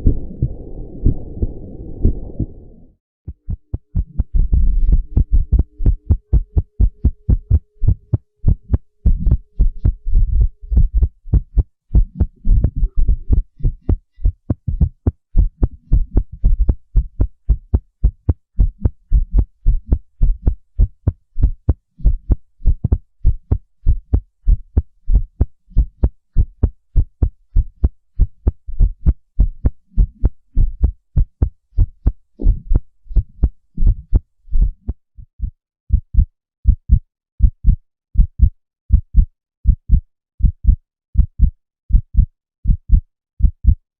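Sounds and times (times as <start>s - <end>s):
heartbeat thuds: 0.0s - 2.7s, 3.3s - 43.8s
low rumble: 0.0s - 18.2s.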